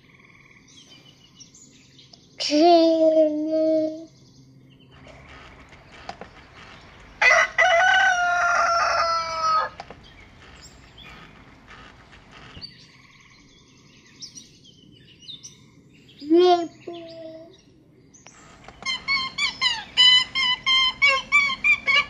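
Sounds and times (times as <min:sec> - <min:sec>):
faint small-bird chirps: 0:00.0 - 0:07.2, 0:09.3 - 0:22.0
rooster crowing: 0:06.4 - 0:12.5.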